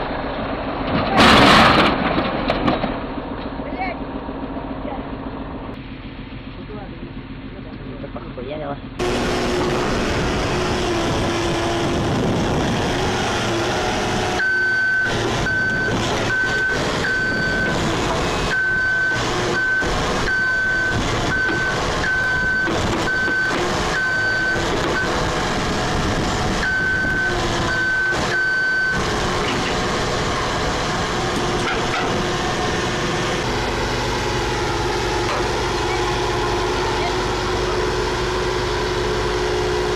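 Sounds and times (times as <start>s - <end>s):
heavy vehicle engine running: 0.0s - 39.9s
reversing alarm beeping: 13.2s - 29.6s.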